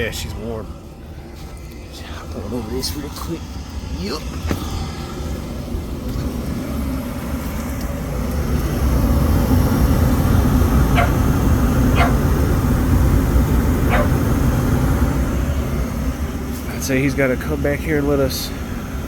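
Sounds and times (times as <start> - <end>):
gas furnace unit humming: 0.0 - 19.0
dog barking: 10.8 - 12.5, 13.8 - 14.4.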